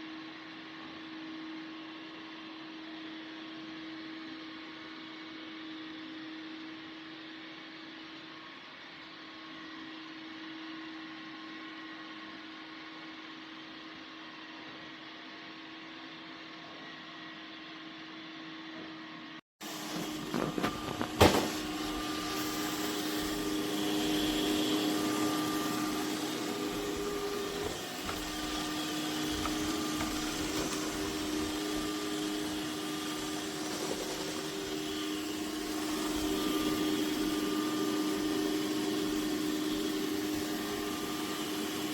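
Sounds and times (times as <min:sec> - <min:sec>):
robot vacuum humming: 0:19.6 - 0:41.9.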